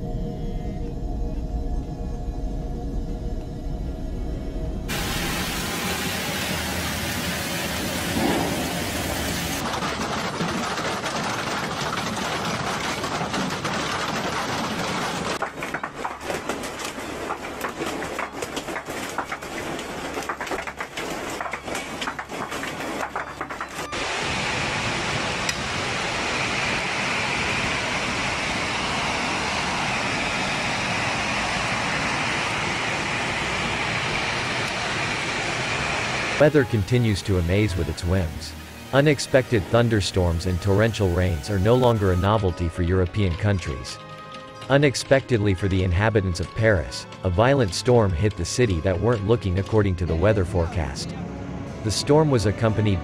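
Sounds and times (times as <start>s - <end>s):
heavy rain pouring: 4.9s - 42.2s
hailstones hitting a tarpaulin: 9.6s - 24.0s.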